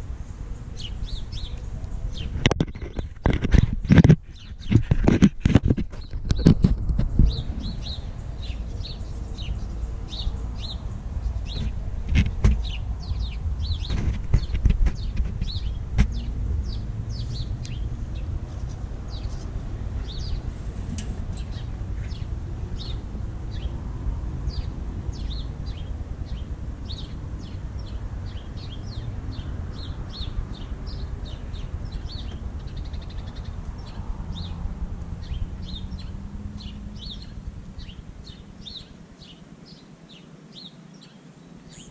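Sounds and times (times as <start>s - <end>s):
small birds chirping: 0.0s - 41.9s
steady low rumble: 5.6s - 39.3s.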